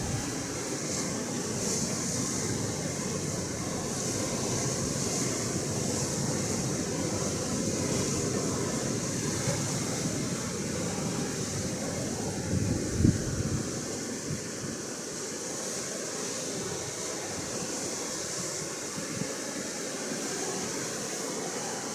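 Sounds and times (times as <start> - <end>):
wind rumbling on microphone: 0.0 - 14.8.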